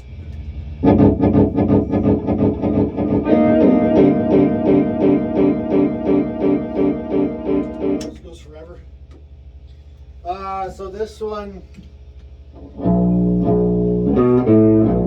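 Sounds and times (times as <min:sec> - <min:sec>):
guitar riff of picked notes: 0:00.8 - 0:08.2, 0:12.6 - 0:15.0.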